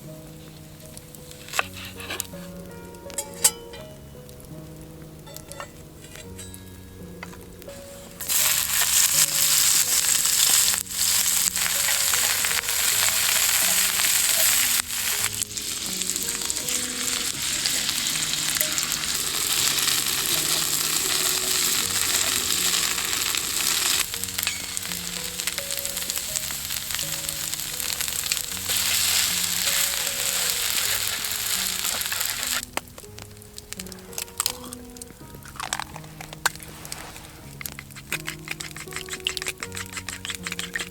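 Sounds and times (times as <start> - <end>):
soft background music: 0.0 - 40.9
food sizzling in a pan: 7.7 - 34.1, 36.6 - 40.9.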